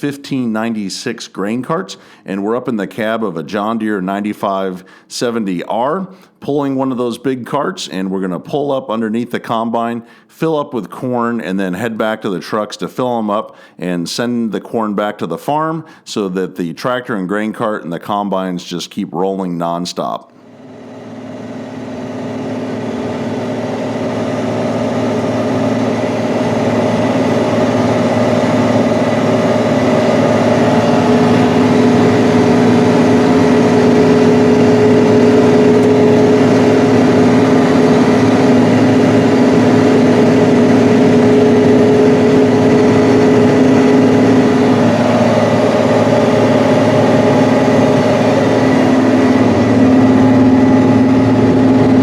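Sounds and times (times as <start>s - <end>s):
large diesel engine running: 20.5s - 52.0s
steady higher tone: 20.5s - 52.0s.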